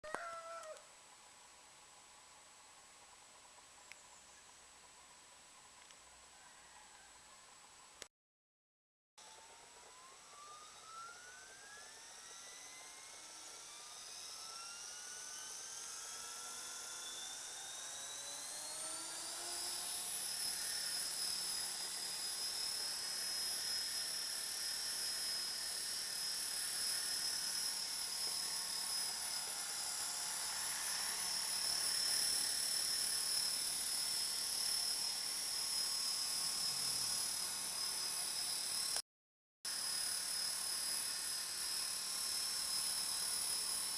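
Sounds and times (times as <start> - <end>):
electric motor whine: 9.2 - 39.0, 39.7 - 43.9.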